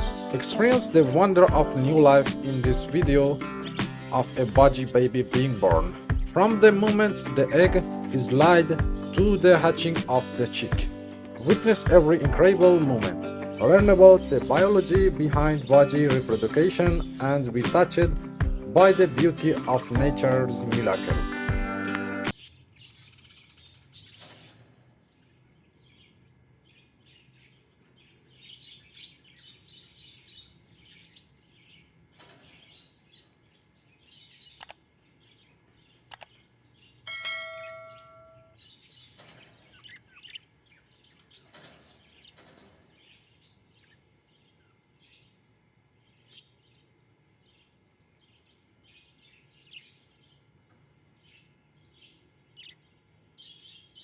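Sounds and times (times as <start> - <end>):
budgerigars chirping: 0.0 - 24.8, 37.6 - 45.4
sharp clicks: 34.6 - 34.8, 36.1 - 36.4.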